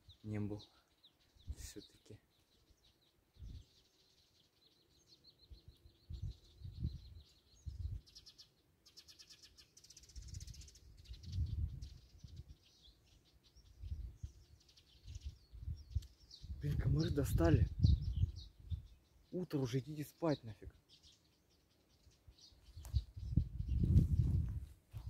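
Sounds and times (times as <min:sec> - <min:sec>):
bird trill: 0:00.0 - 0:17.0
songbirds chirping: 0:00.0 - 0:25.0.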